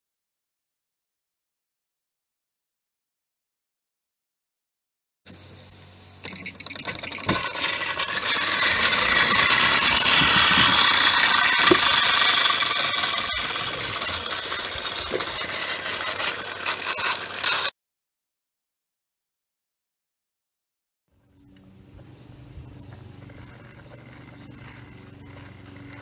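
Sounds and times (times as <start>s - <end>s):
metallic gearing rattle: 6.2s - 17.7s, 23.2s - 26.0s.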